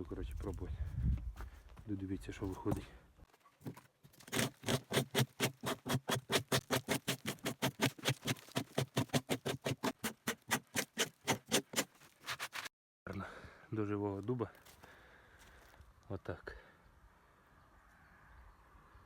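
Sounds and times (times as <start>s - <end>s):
scraper rasping bark off log: 4.2s - 12.7s.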